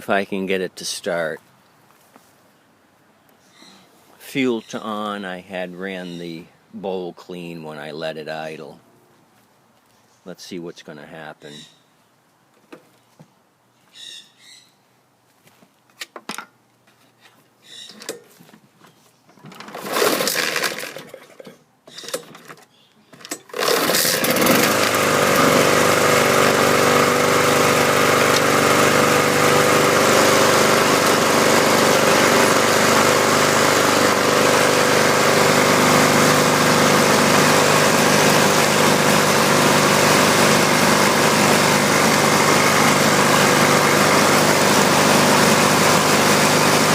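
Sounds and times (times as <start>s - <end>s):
starter cord pulls: 19.4s - 25.8s, 28.2s - 28.6s
lawn mower engine running: 19.5s - 21.5s, 23.2s - 46.9s.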